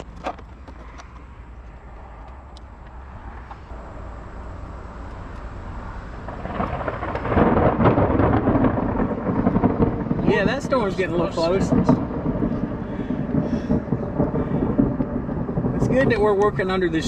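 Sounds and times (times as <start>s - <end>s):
rolling thunder: 5.5s - 17.0s.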